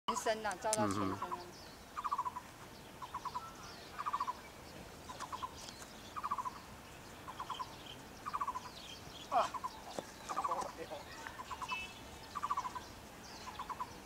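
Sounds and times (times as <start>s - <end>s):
bird trilling: 0.1s - 4.5s, 5.1s - 14.0s.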